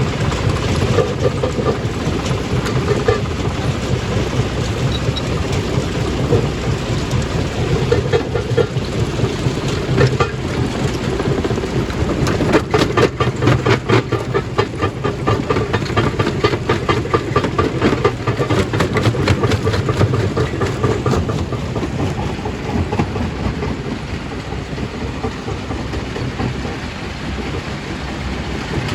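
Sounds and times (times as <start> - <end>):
stone crushing machine rumbling: 0.0 - 28.9.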